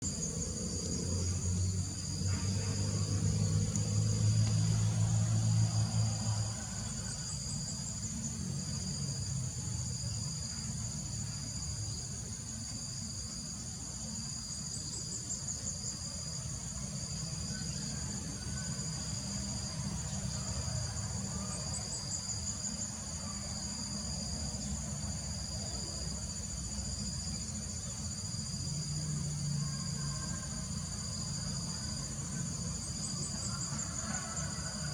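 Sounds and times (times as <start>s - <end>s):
insects buzzing: 0.0s - 34.9s.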